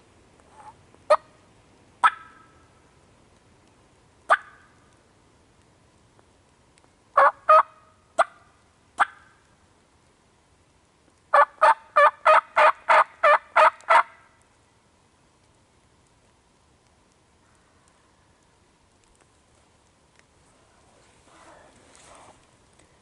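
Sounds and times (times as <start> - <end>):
turkey call yelps: 2.0 - 2.5, 4.3 - 4.7, 7.2 - 8.4, 9.0 - 9.4, 11.3 - 14.2.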